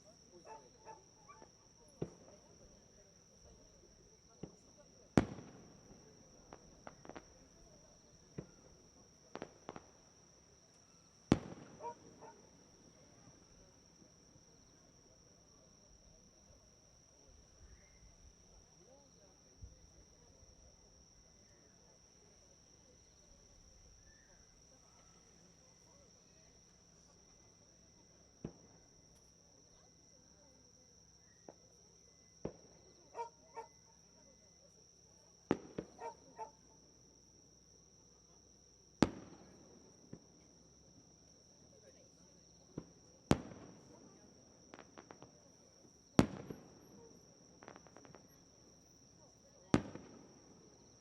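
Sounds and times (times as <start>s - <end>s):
fireworks bursting: 0.0s - 2.9s, 3.5s - 14.1s, 35.5s - 36.4s, 38.9s - 40.5s, 42.6s - 51.0s
night insects trilling: 0.0s - 51.0s.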